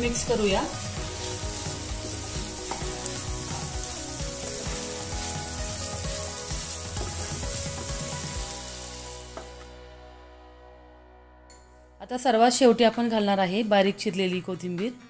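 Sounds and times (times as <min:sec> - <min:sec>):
eggs sizzling in a frying pan: 0:00.0 - 0:09.8.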